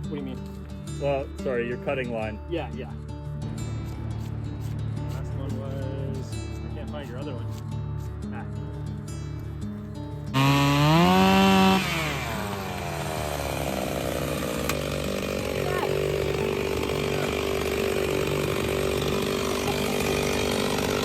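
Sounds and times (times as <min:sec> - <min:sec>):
chainsaw cutting wood: 0:10.3 - 0:21.0.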